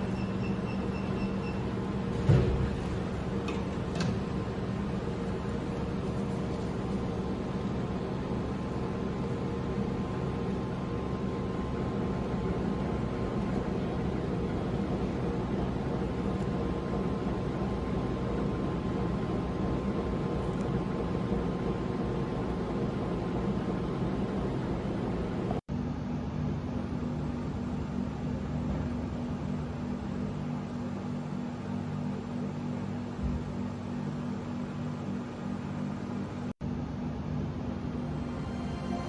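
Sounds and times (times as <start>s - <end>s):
steady machine hum: 0.0s - 39.0s
faint high tone: 38.0s - 39.0s.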